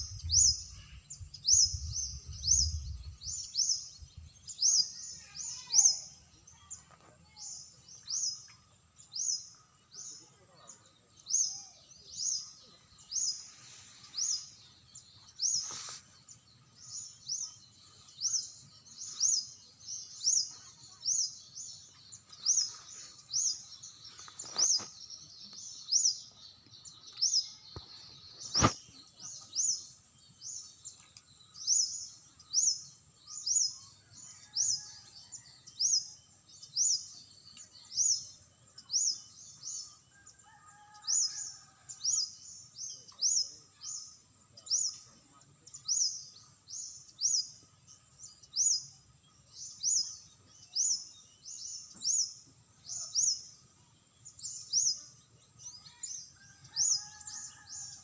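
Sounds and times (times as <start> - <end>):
bird chirping: 0.0 - 58.0.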